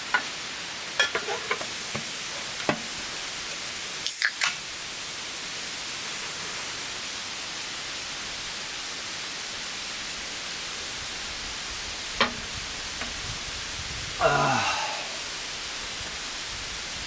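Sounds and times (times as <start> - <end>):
steady broad hiss: 0.0 - 17.0.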